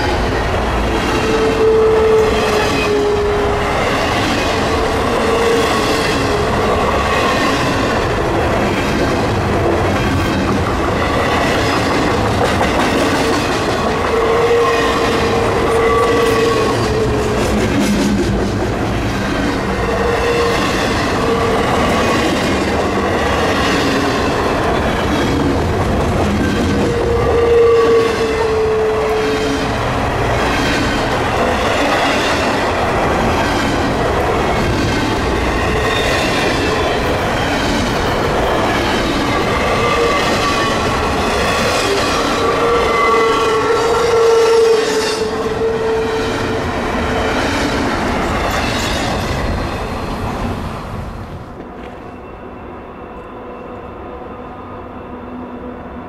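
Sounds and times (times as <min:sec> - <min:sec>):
train wheels clattering over rails: 0:00.0 - 0:14.2, 0:16.2 - 0:19.8.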